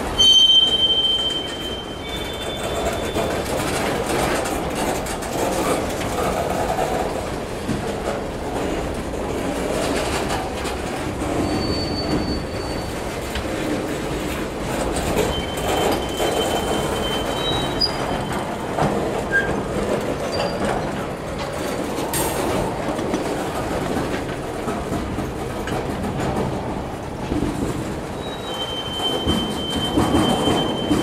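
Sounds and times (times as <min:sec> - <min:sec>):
train wheels rumbling on rails: 0:00.0 - 0:31.0
wheel squeals: 0:00.1 - 0:04.2, 0:11.2 - 0:13.5, 0:15.0 - 0:19.6, 0:28.1 - 0:31.0.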